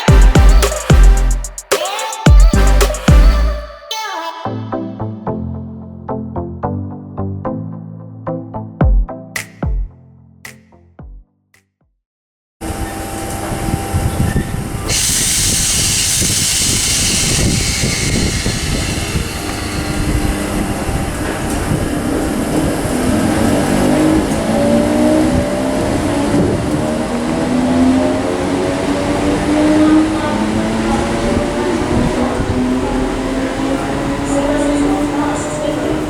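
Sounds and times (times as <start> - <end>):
traction motors whining: 12.6 - 36.0
train rushing noise: 12.6 - 36.0.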